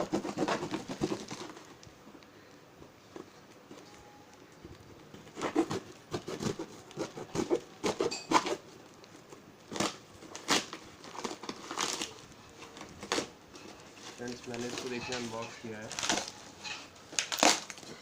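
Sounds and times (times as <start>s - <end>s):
packaging being torn open: 9.7s - 15.0s, 15.8s - 16.4s, 17.1s - 18.0s.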